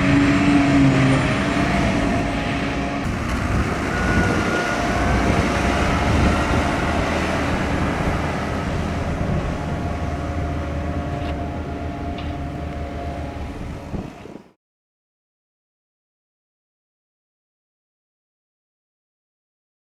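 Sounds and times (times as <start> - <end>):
diesel engine rumbling: 0.0 - 14.5.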